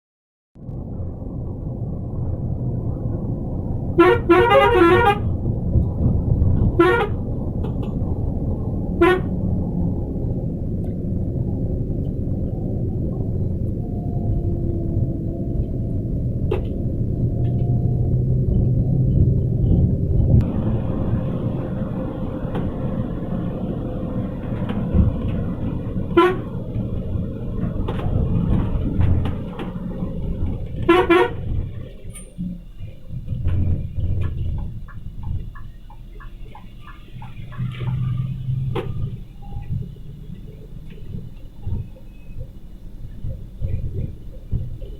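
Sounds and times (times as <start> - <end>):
engine and traffic rumble: 0.6 - 44.9
coach horn blasts: 4.0 - 5.4, 6.7 - 7.2, 9.0 - 9.4, 26.0 - 26.7, 30.8 - 31.5.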